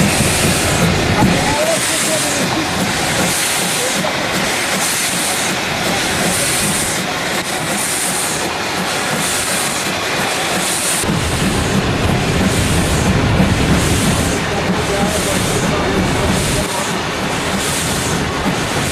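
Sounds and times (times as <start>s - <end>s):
steam locomotive chuffing: 0.0s - 18.9s
low rumble: 11.0s - 16.6s.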